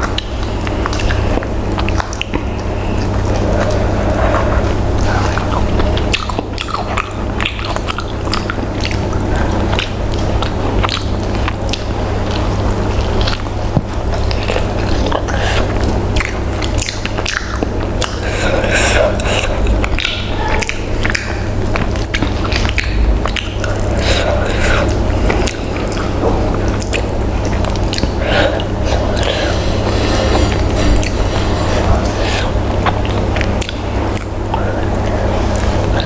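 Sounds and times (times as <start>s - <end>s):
chewing and biting: 0.0s - 36.0s
low hum: 0.0s - 36.0s.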